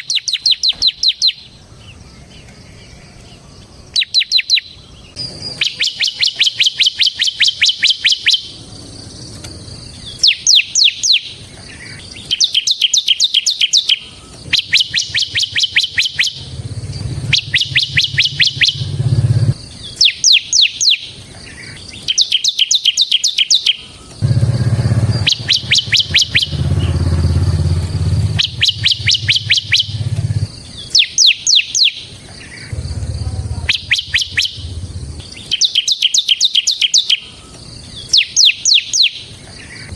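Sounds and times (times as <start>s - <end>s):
bird singing rapid trill: 0.0s - 39.9s
low hum: 16.3s - 19.6s, 24.2s - 30.5s, 32.7s - 35.4s.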